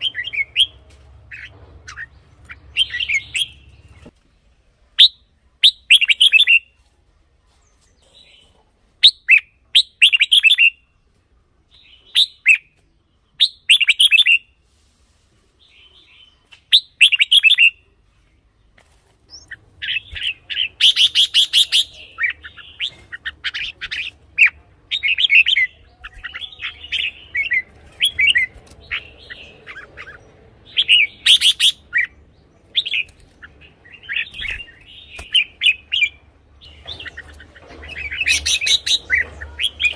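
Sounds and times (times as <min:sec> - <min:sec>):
bird singing whistled phrases: 0:30.7 - 0:32.1.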